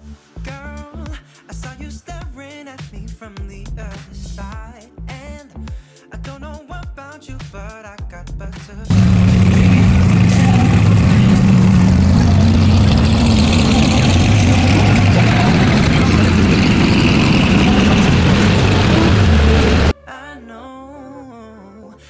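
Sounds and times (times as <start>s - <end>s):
car engine running loudly: 8.9s - 19.9s.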